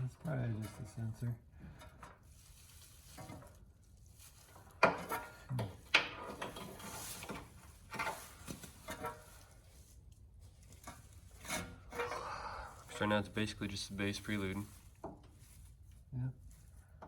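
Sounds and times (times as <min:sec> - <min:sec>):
hand tools clanking on metal: 0:04.8 - 0:09.4, 0:10.8 - 0:13.2.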